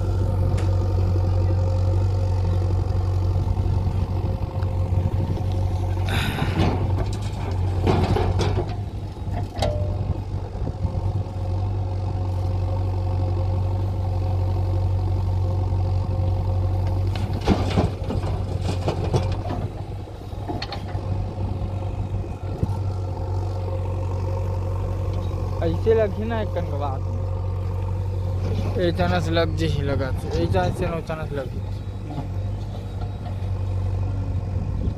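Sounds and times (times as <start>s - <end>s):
diesel engine idling: 0.0s - 34.9s
metallic knocks and clatters: 6.6s - 8.8s.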